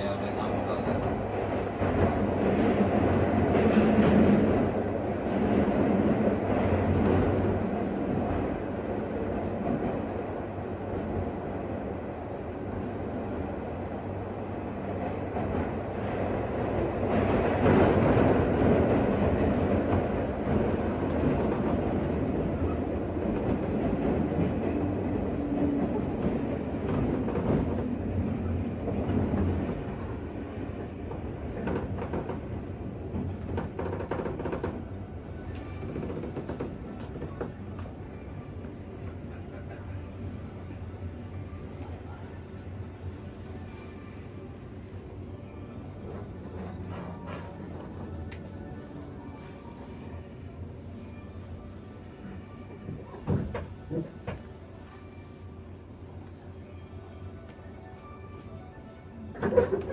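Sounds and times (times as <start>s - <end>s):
train wheels on rail: 0.5s - 11.3s, 14.8s - 38.0s, 52.8s - 55.4s.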